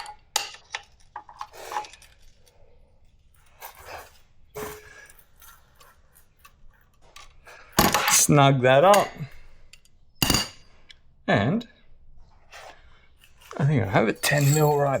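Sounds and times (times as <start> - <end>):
hand tools clicking and rustling: 13.2 - 15.0.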